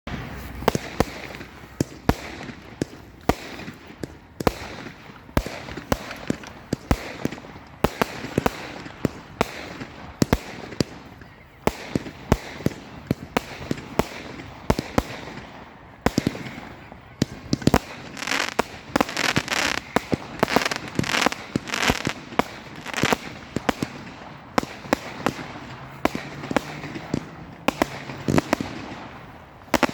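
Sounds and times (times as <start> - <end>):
fireworks sharp bangs: 0.1 - 29.9
steady hiss: 18.0 - 23.4.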